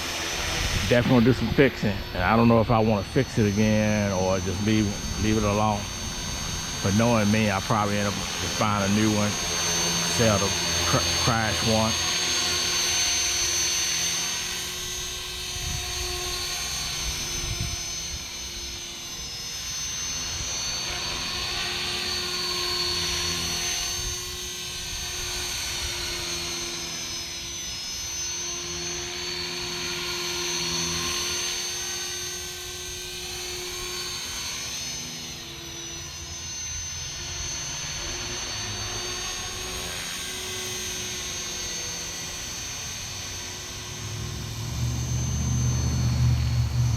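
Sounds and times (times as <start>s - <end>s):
model helicopter whine: 0.0s - 46.9s
wind rumbling on microphone: 0.3s - 3.5s, 4.5s - 6.8s, 15.4s - 16.4s, 17.0s - 18.2s, 44.1s - 46.9s.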